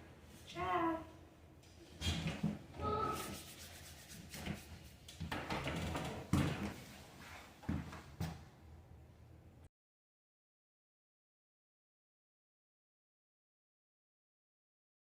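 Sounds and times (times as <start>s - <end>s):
objects rubbing and rustling: 1.9s - 8.1s
short voice sound: 2.8s - 3.4s.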